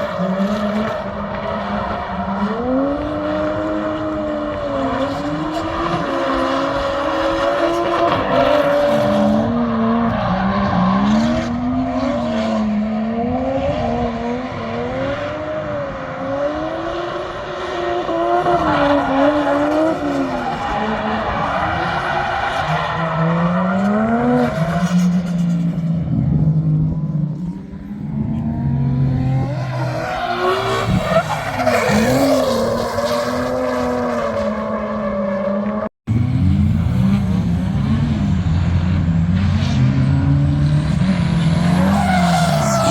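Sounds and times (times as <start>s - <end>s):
car engine revving: 35.7s - 42.9s.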